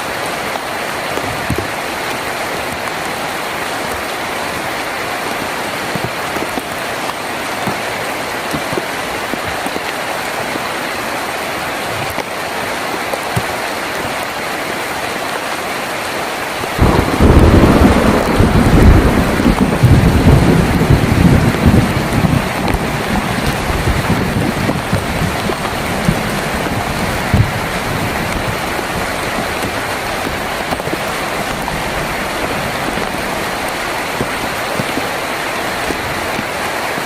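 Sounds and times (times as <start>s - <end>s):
heavy rain on a tin roof: 0.0s - 37.0s
thunder rumble: 16.8s - 35.2s.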